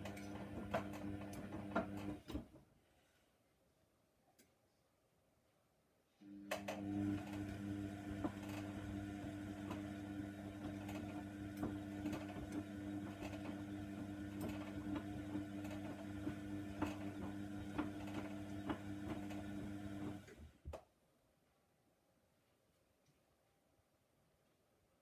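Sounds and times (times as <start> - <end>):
washer-dryer motor hum: 0.0 - 2.4, 6.2 - 20.7.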